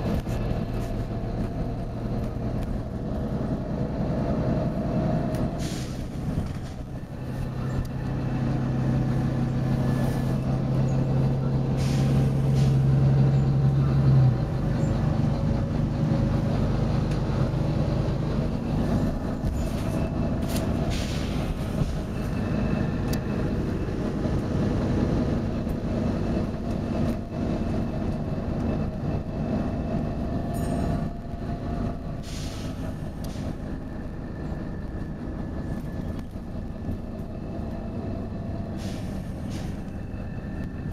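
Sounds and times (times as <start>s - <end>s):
bus engine droning: 0.0s - 40.9s
compressed air hisses: 5.6s - 6.2s, 32.2s - 33.4s, 38.8s - 39.8s.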